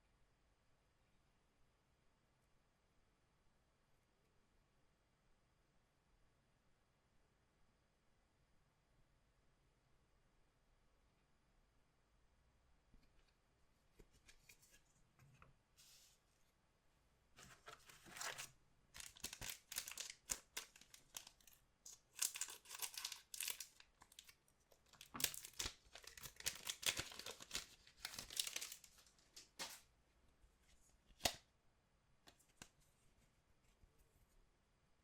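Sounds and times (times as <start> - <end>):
card pack wrappers tearing: 17.7 - 29.8.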